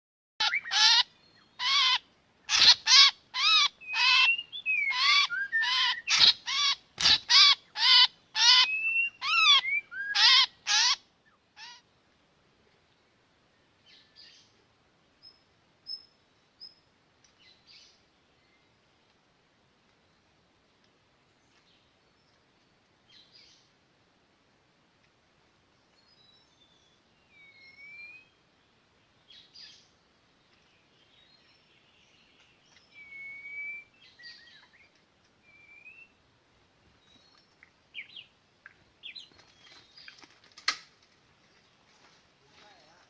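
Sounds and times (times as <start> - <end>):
faint songbird whistled calls: 2.6 - 6.8, 7.4 - 11.0, 26.0 - 28.4, 32.7 - 36.2.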